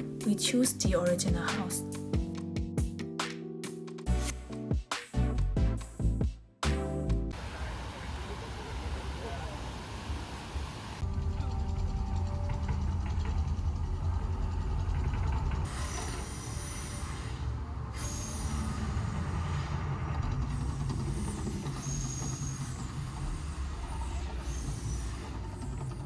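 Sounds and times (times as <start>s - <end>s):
low rumble of vehicle traffic: 7.3s - 26.0s.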